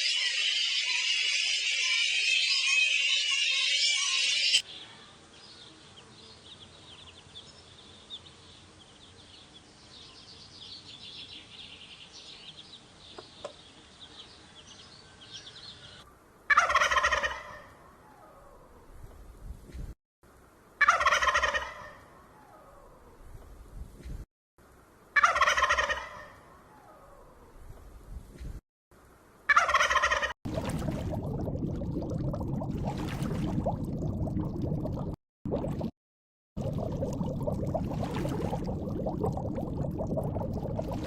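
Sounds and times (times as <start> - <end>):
bird calling with rattle: 0.0 - 4.6.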